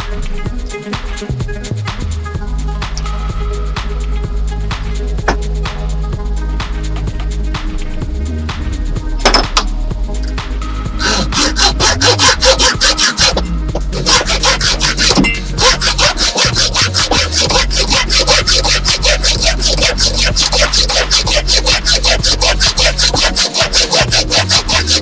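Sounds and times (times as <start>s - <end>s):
hand saw cutting: 11.0s - 25.0s.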